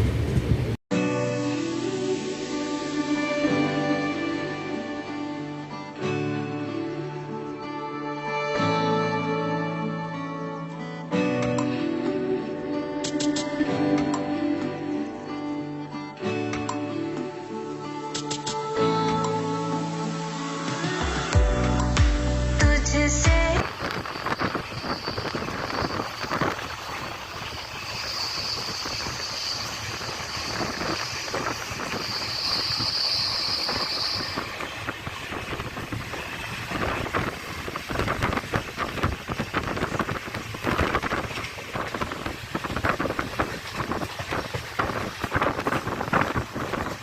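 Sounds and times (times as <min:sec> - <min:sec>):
rushing wind: 0:00.0 - 0:00.8, 0:23.6 - 0:47.0
thin high whine: 0:22.9 - 0:44.0
train wheels rattling on track: 0:23.7 - 0:47.0.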